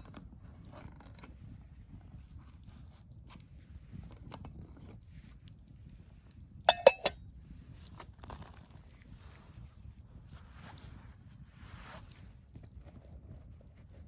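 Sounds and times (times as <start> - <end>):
cookware clinking: 6.7 - 7.2.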